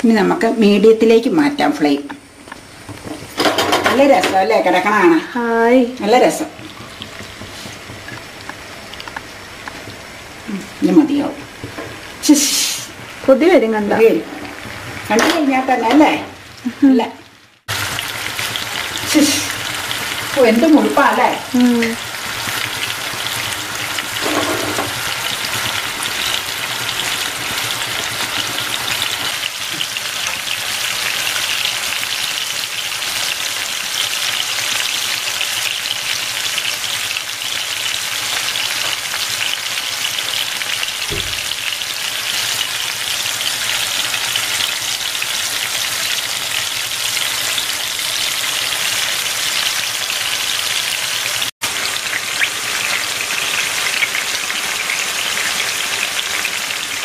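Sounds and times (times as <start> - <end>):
prawns sizzling in oil: 0.1 - 57.0
short knock: 41.1 - 41.4.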